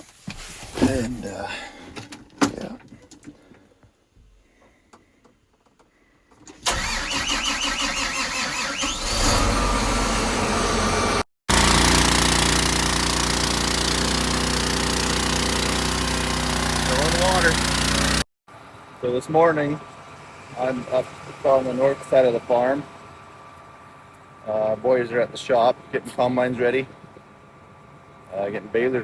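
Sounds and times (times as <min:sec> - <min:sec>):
vehicle engine cranking and running: 0:06.3 - 0:18.2.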